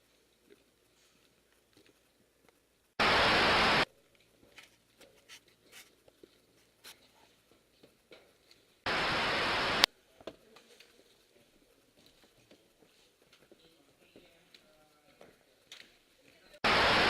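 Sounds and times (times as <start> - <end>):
hissing static bursts: 3.0 - 3.9, 8.9 - 9.9, 16.6 - 17.0.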